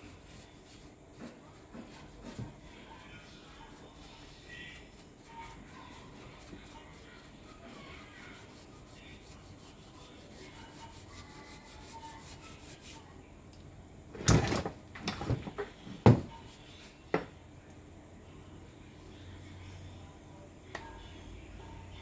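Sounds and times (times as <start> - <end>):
hard objects knocking and scraping: 14.2 - 16.5, 17.1 - 17.3.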